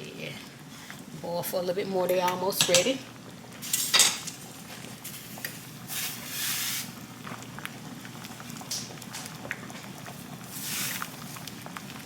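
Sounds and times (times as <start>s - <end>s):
pot boiling and bubbling: 0.0s - 12.0s.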